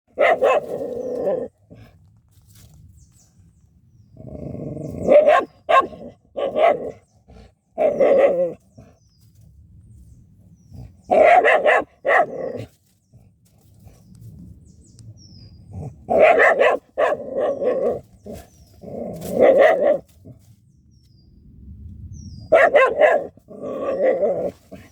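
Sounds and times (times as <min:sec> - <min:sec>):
dog barking: 0:00.1 - 0:01.5, 0:05.0 - 0:07.0, 0:07.8 - 0:08.6, 0:11.1 - 0:12.7, 0:16.1 - 0:18.0, 0:19.3 - 0:20.0, 0:22.5 - 0:24.9.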